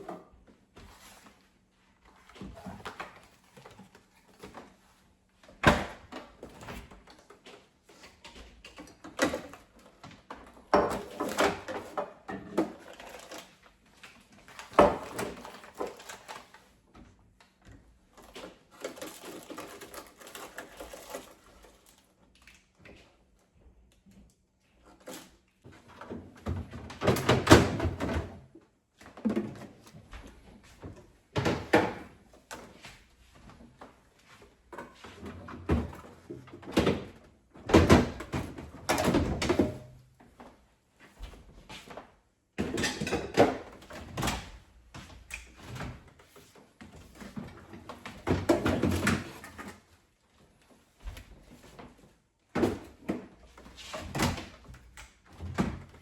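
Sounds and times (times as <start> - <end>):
food containers knocking and clattering: 8.7 - 13.4, 14.4 - 16.5, 42.6 - 44.5, 47.3 - 49.9.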